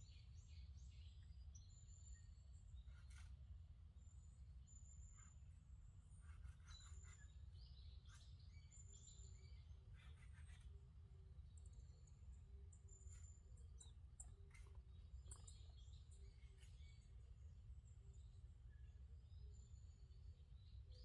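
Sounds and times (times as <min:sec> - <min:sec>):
birds chirping: 0:11.5 - 0:20.8.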